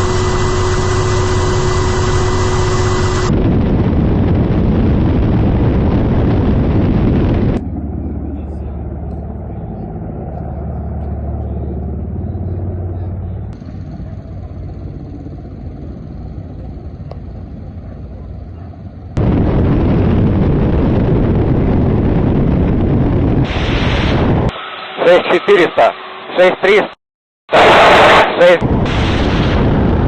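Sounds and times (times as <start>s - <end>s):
helicopter engine and rotor drone: 0.0s - 19.5s
loud rushing noise: 27.5s - 30.0s.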